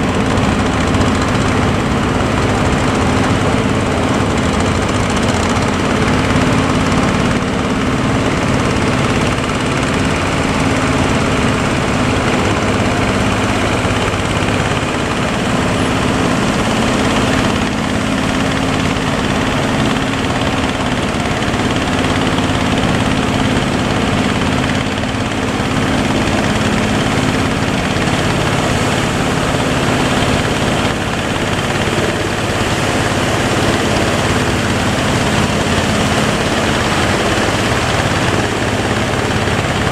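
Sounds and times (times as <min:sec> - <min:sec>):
boat engine running: 0:00.0 - 0:39.9
rushing noise: 0:00.0 - 0:39.9.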